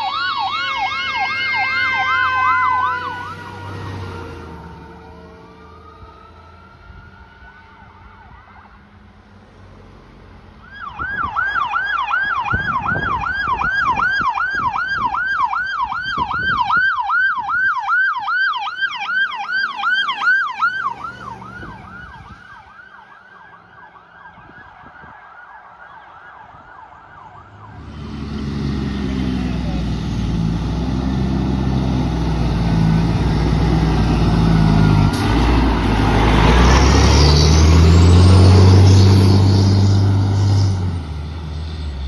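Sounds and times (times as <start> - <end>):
fire engine siren yelping: 0.0 - 9.1, 10.6 - 42.0
low vehicle rumble: 15.8 - 24.7, 26.7 - 42.0.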